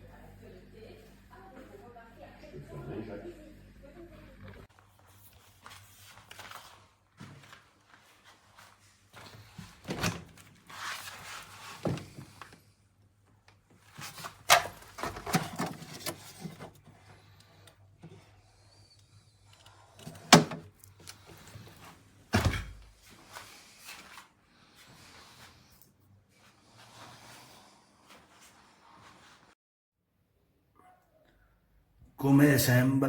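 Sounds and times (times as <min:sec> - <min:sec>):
handling knocks and thuds: 0:22.3 - 0:22.9.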